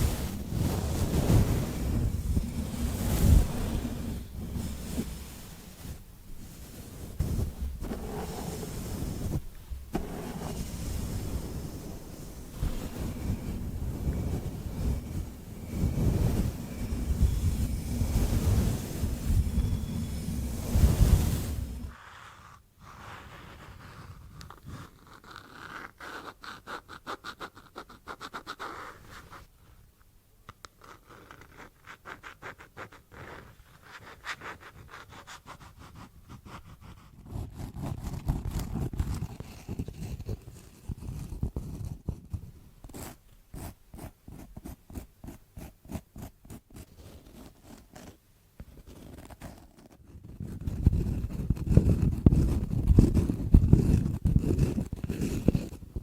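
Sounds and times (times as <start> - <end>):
rapid scratching and scraping: 0.0 - 22.0, 45.9 - 56.0.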